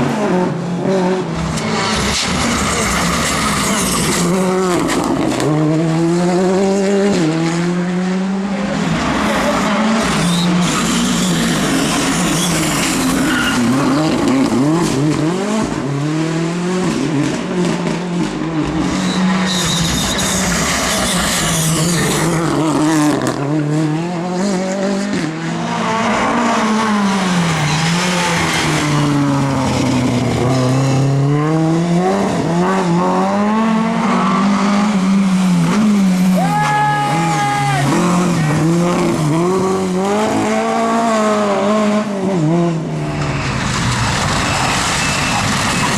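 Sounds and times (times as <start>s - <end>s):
rally car engines revving: 0.0s - 45.9s
tyre squeal: 10.1s - 14.1s, 18.9s - 22.4s, 44.4s - 45.9s.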